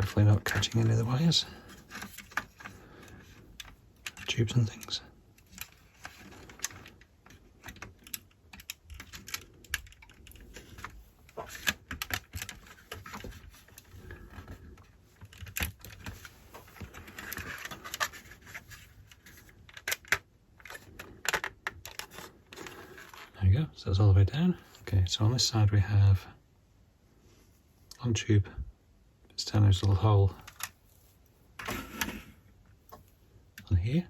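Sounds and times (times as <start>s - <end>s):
plastic parts clicking and tapping: 0.0s - 23.3s, 30.4s - 30.8s.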